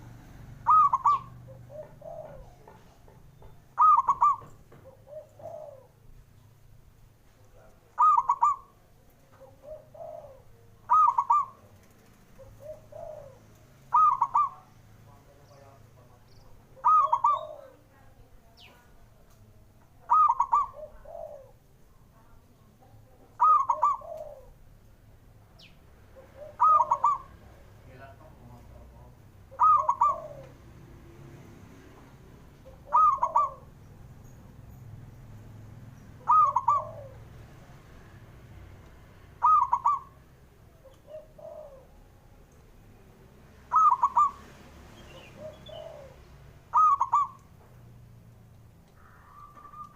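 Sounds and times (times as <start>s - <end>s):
dove cooing: 0.0s - 6.2s, 7.9s - 14.7s, 16.7s - 17.9s, 20.0s - 21.6s, 23.1s - 24.7s, 26.1s - 27.6s, 28.6s - 30.8s, 32.6s - 34.4s, 36.2s - 37.4s, 39.3s - 42.3s, 43.7s - 44.5s, 45.1s - 47.5s, 49.0s - 49.9s.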